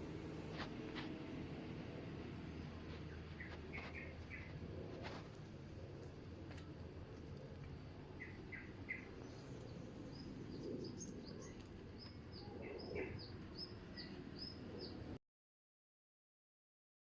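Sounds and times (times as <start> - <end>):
low steady hum: 0.0 - 15.2
small birds chirping: 2.4 - 5.4, 6.0 - 15.2.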